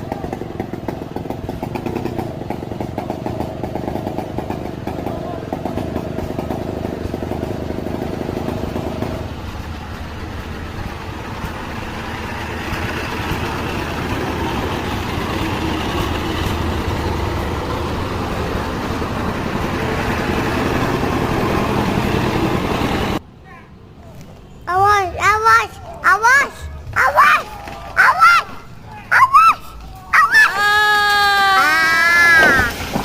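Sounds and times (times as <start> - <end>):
engine running: 0.0 - 23.3.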